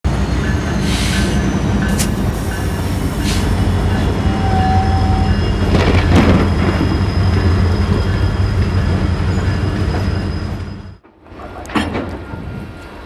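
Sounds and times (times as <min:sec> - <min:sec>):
diesel locomotive rumble: 0:00.1 - 0:11.0
brief squeal: 0:07.1 - 0:11.0.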